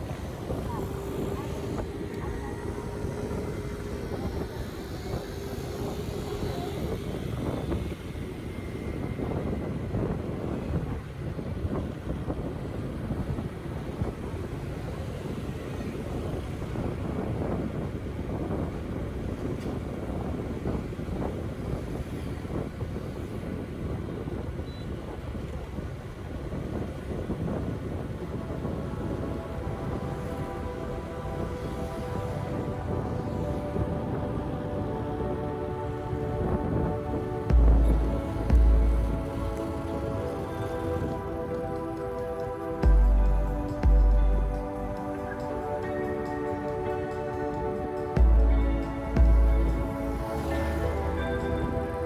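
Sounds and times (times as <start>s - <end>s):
engine hum: 0.0s - 8.9s, 35.5s - 41.6s, 42.8s - 45.4s, 48.2s - 52.0s
street traffic rumbling: 0.0s - 12.2s, 26.8s - 52.0s
wind buffeting microphone: 0.0s - 52.0s.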